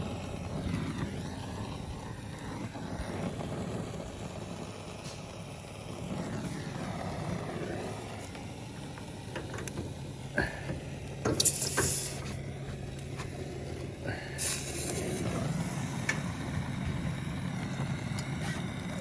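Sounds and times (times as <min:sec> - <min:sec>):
gas torch flame: 0:00.0 - 0:19.0
short bright hisses: 0:11.4 - 0:12.4, 0:14.3 - 0:15.2.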